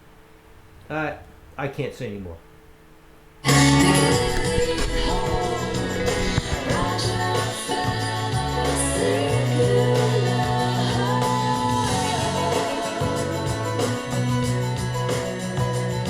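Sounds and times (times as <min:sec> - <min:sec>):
song with singing over speakers: 0:03.4 - 0:16.0.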